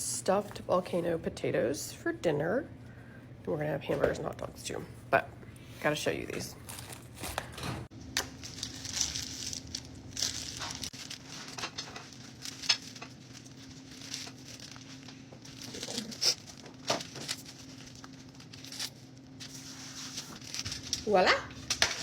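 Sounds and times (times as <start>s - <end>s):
faint steady hum: 0.0s - 22.0s
food packaging crinkling: 6.3s - 22.0s.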